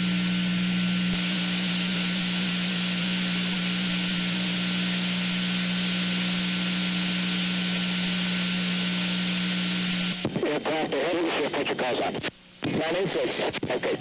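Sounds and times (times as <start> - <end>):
low hum: 0.0 - 12.6
steady hiss: 1.2 - 4.6.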